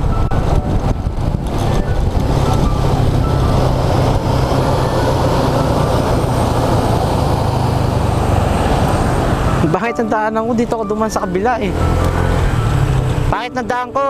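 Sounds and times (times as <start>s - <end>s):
scooter engine running: 0.0s - 9.7s
wind and road noise: 0.0s - 14.0s.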